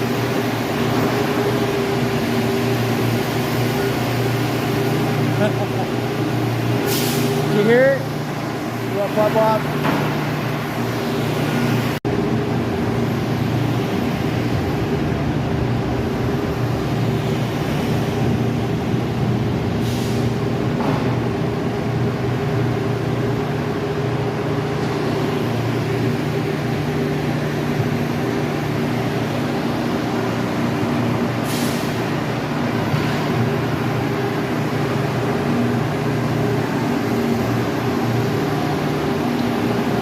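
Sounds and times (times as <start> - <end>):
heavy diesel engine running: 0.0 - 40.0
short hisses: 6.9 - 7.4, 31.4 - 32.0.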